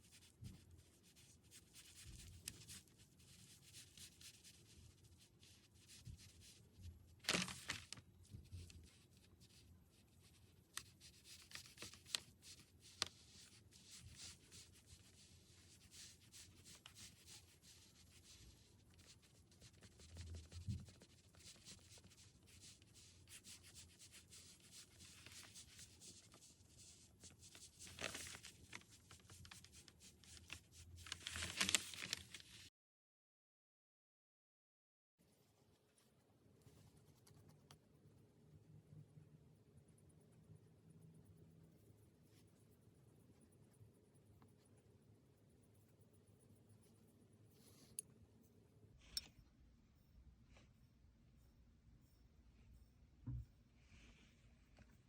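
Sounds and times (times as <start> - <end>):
scratching strokes on paper: 0.0 - 32.7, 39.6 - 55.0
paper rustle: 5.4 - 9.6, 10.8 - 15.2, 24.6 - 32.7.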